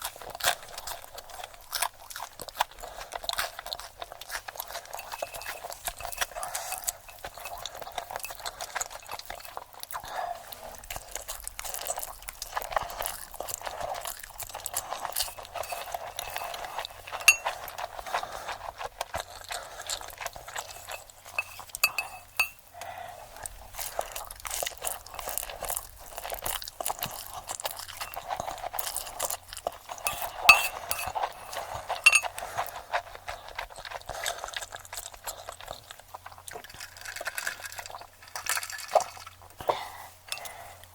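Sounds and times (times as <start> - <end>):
crunching and chewing: 0.0 - 40.9
cutlery and dishes clinking: 5.0 - 6.4, 15.2 - 17.6, 20.7 - 22.6, 30.1 - 31.4, 32.0 - 32.3.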